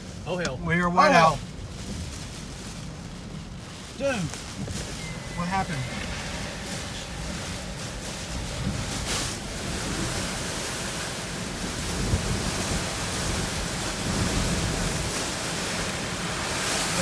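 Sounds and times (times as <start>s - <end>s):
driving rain on a car: 0.0s - 17.0s
strong wind buffeting a car: 0.0s - 17.0s.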